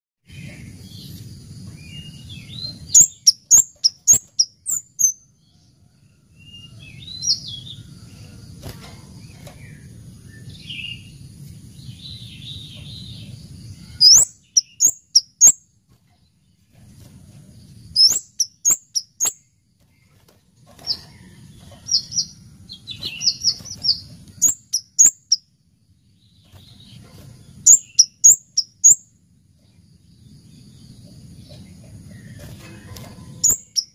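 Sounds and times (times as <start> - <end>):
bird chipping calls: 2.5 - 5.2, 14.0 - 15.6, 18.0 - 19.5, 20.8 - 25.4, 26.4 - 29.0, 32.1 - 33.9.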